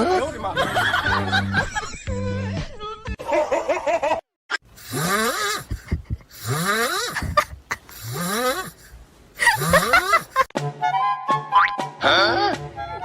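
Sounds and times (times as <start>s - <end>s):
pet snoring wheezily: 4.8s - 5.7s, 6.3s - 8.9s, 9.5s - 10.4s.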